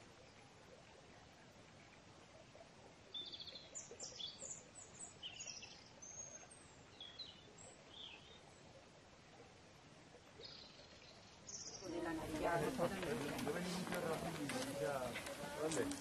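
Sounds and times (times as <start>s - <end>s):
quiet background hiss: 0.0s - 16.0s
small birds chirping faintly: 0.0s - 16.0s.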